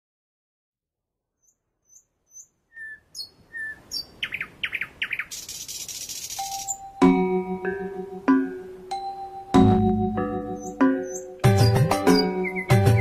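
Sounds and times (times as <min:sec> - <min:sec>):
birds chirping: 0:01.4 - 0:13.0
high steady hiss: 0:03.3 - 0:09.5.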